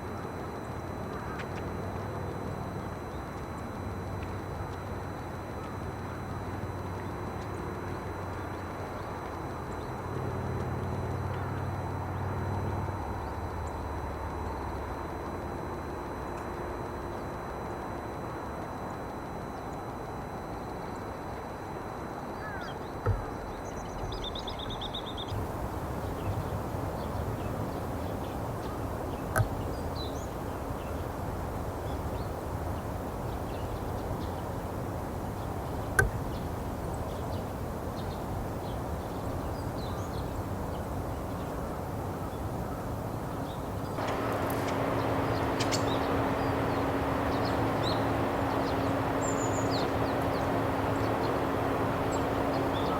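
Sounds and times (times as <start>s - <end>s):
outdoor background noise: 0.0s - 52.9s
faint high bird chirps: 44.0s - 52.9s.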